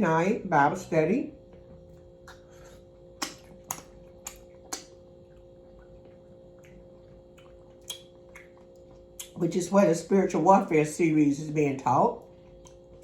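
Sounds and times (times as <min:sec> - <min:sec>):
faint electrical hum: 0:00.0 - 0:13.0
mouth clicks and smacks eating: 0:01.5 - 0:09.4, 0:12.2 - 0:13.0.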